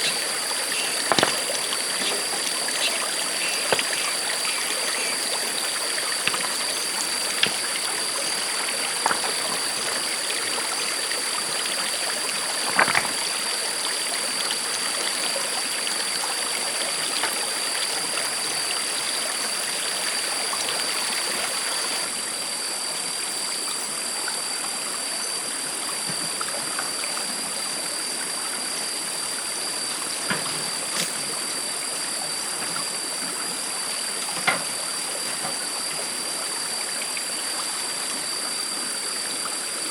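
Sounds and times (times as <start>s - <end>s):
knocks and splashes: 0.0s - 5.5s, 6.1s - 10.2s, 12.6s - 13.3s
stream flowing over stones: 0.0s - 39.9s.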